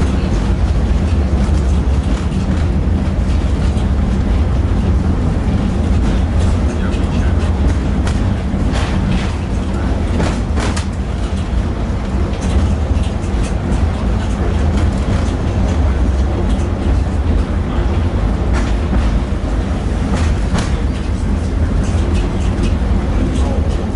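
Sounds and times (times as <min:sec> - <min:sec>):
tram running low rumble: 0:00.0 - 0:23.9
sharp clicks and knocks: 0:05.8 - 0:11.6, 0:20.1 - 0:23.5.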